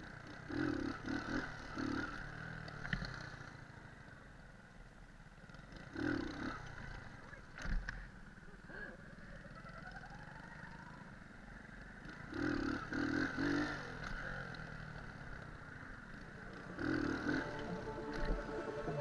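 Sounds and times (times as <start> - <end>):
moped engine running: 9.0 - 19.0.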